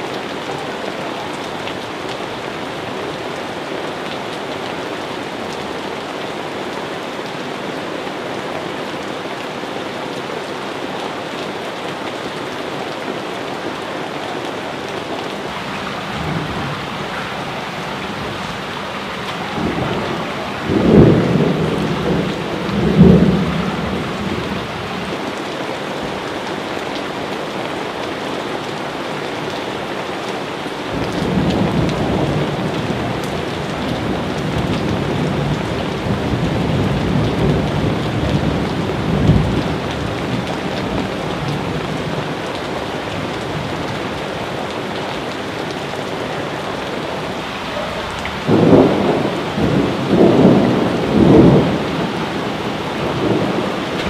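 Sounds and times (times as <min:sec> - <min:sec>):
steady rain: 0:00.0 - 0:54.0
thunder rumbling: 0:15.4 - 0:25.2, 0:47.7 - 0:54.0.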